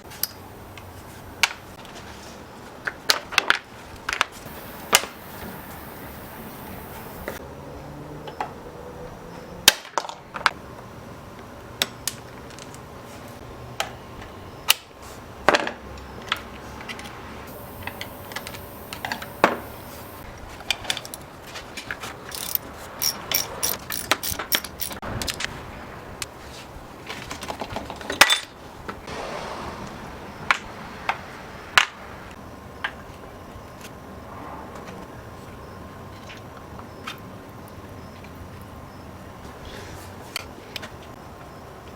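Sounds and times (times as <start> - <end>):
tools clacking on work surface: 20.8 - 25.0.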